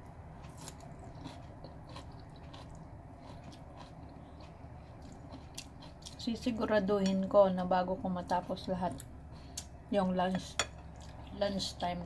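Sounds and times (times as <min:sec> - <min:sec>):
person chewing: 0:00.4 - 0:06.2.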